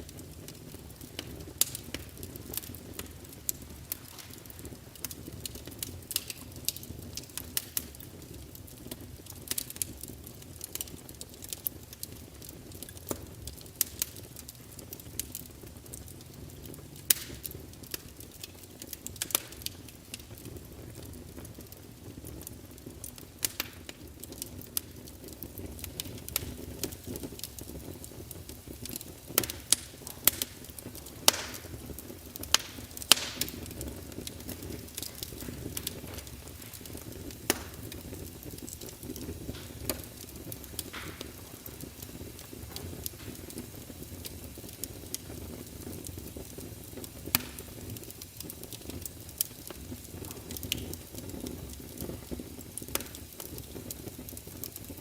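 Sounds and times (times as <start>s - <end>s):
fire crackling and popping: 0.0s - 55.0s
low rumble of burning wood: 0.0s - 55.0s.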